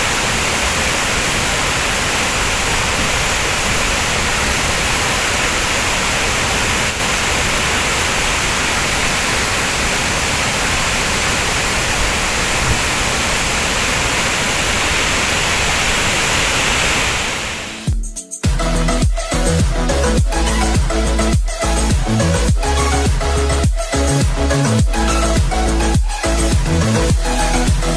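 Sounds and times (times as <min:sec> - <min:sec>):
waterfall rushing: 0:00.0 - 0:17.9.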